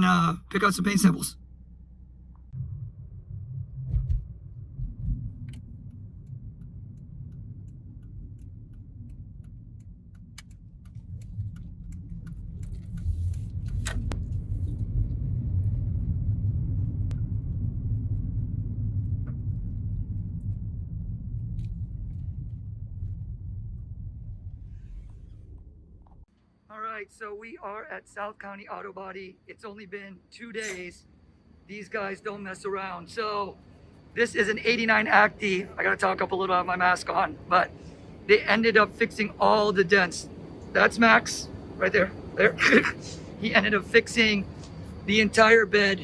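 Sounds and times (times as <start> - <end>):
car engine and road rumble: 0.0 - 26.3.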